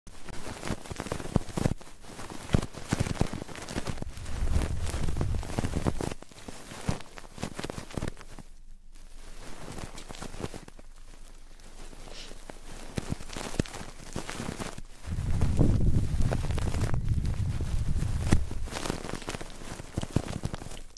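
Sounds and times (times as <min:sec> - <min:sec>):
microphone rubbing and scratching: 0:00.1 - 0:20.9
low handling rumble: 0:04.0 - 0:05.9, 0:15.0 - 0:18.7.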